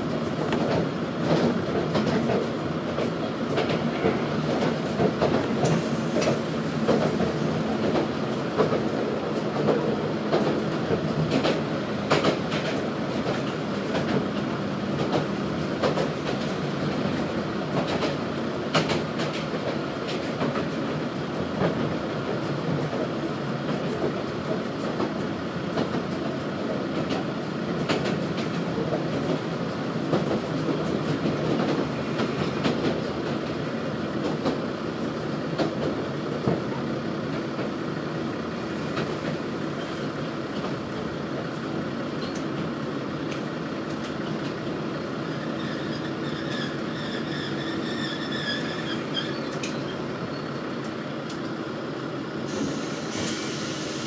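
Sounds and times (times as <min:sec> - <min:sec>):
railcar rumbling over rails: 0:00.0 - 0:54.0
clicks at rail joints: 0:00.5 - 0:20.9, 0:26.9 - 0:29.5
wheel and brake squeal: 0:45.2 - 0:50.6.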